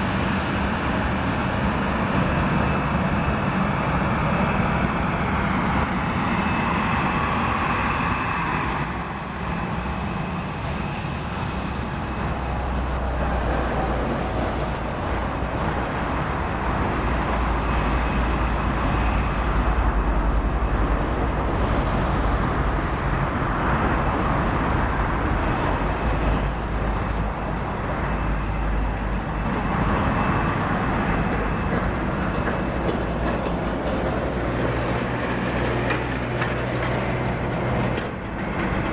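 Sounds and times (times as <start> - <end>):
high engine whine: 0.0 - 38.9
jet engines running: 0.0 - 38.9.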